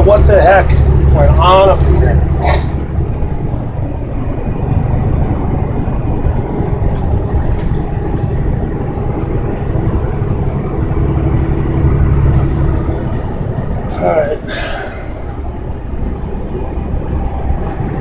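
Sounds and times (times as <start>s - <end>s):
road noise: 0.0s - 18.0s
truck engine rumble: 0.0s - 18.0s.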